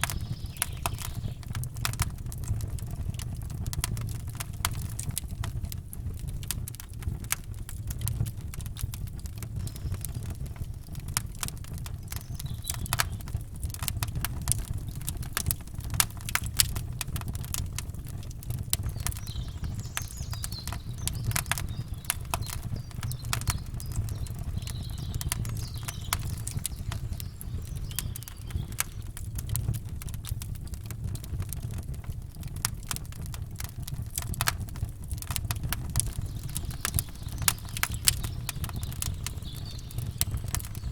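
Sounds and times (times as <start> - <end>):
faint bird chirps: 0.0 - 1.5, 9.6 - 10.5, 12.0 - 13.3, 18.8 - 29.2, 35.9 - 40.9
campfire crackling and popping: 0.0 - 40.9.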